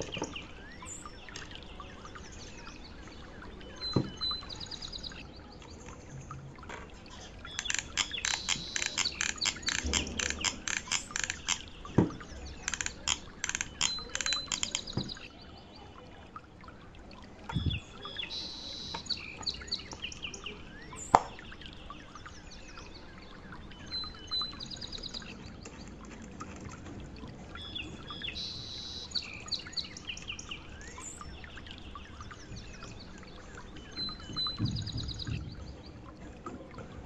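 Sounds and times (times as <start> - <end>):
small birds chirping: 0.0 - 37.0
low knocks: 34.2 - 35.8.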